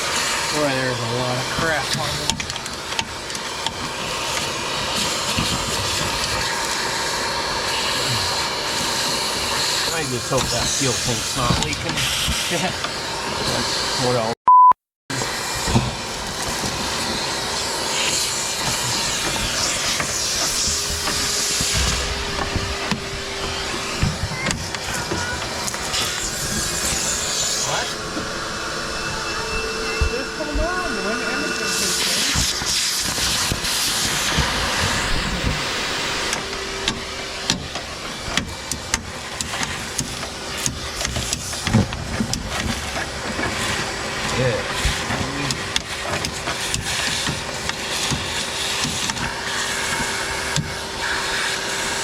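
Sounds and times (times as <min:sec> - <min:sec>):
sharp clicks and knocks: 0:36.3 - 0:49.4.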